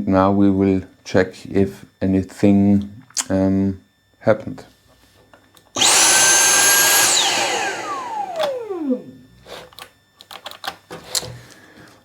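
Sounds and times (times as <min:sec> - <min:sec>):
motor spinning down: 0:05.8 - 0:09.2
vacuum motor whining: 0:05.8 - 0:09.4.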